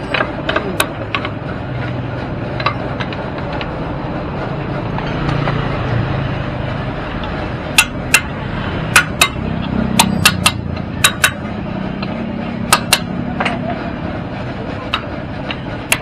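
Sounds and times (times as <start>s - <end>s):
steady background hum: 0.0s - 16.0s
sharp hammer-like strikes: 7.6s - 13.6s.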